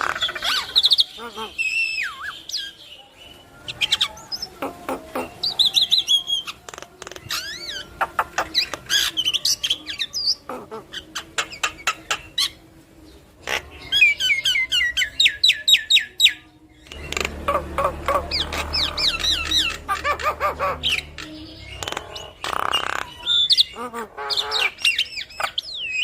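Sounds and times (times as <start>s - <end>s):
low hum: 16.9s - 22.3s.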